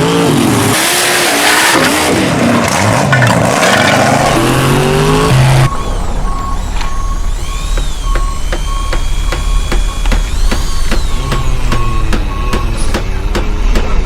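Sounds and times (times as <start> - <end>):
monster truck engine revving: 0.0 - 14.0
short beeps: 4.4 - 12.8.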